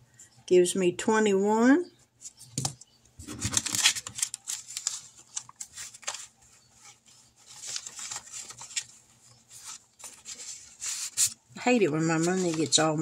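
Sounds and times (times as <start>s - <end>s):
paper banknotes rustling: 3.2s - 13.0s.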